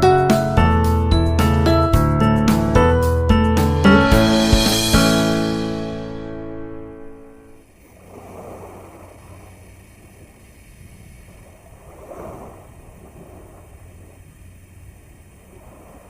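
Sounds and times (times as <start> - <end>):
sea waves washing ashore: 6.4 - 16.0
wind rumble on microphone: 7.8 - 16.0.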